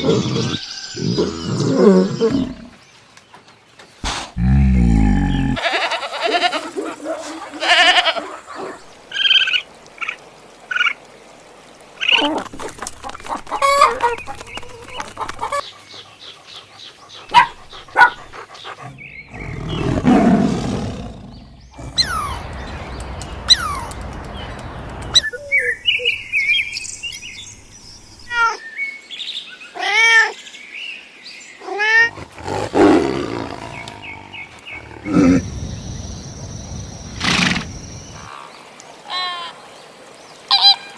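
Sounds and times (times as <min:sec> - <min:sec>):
animal roars: 0:04.0 - 0:05.6, 0:18.9 - 0:22.8, 0:32.1 - 0:35.9
high chirping animal calls: 0:17.2 - 0:24.3.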